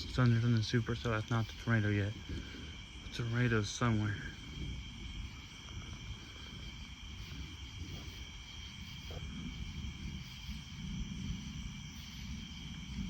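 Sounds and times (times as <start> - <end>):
high trill of insects: 0.0 - 13.0
low rolling thunder: 3.3 - 13.0.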